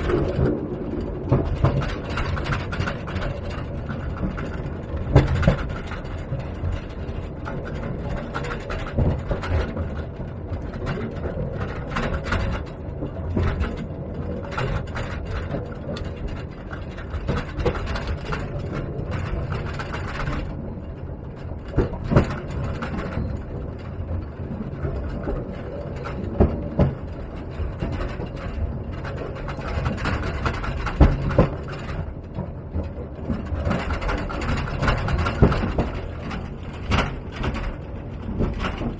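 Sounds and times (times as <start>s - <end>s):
rattling and clattering: 0.0s - 38.9s
train wheels rumbling: 0.0s - 38.9s.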